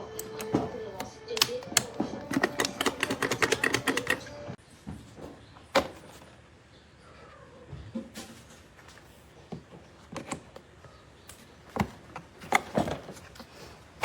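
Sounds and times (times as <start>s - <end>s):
rapid mechanical clicking: 2.3s - 4.2s.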